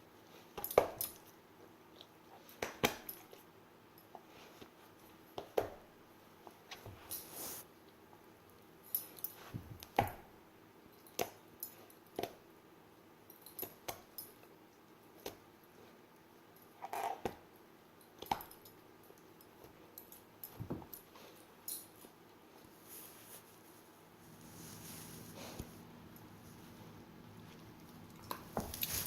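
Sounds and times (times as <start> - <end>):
short thumps clicks and rustles: 27.5 - 29.0.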